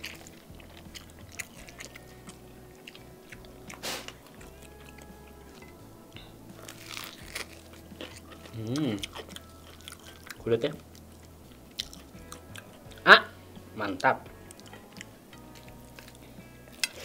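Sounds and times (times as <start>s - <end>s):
wet chewing and smacking: 0.0s - 13.0s, 14.0s - 17.0s
crunchy bites: 6.6s - 10.4s.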